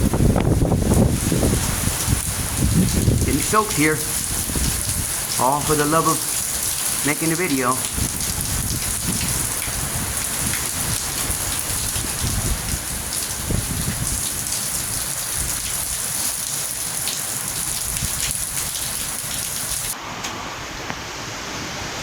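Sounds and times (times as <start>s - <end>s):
wind gusting across microphone: 0.0s - 7.0s, 7.8s - 16.5s, 17.6s - 22.0s
heavy rain pouring: 0.0s - 22.0s.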